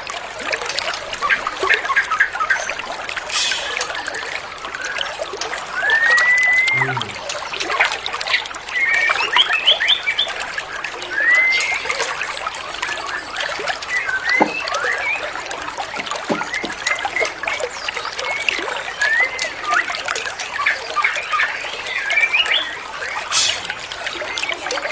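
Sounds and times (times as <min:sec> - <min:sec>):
trickle of running water: 0:00.0 - 0:24.9
whistled bird calls: 0:05.7 - 0:07.2, 0:11.0 - 0:12.2, 0:16.0 - 0:20.0, 0:20.6 - 0:23.7.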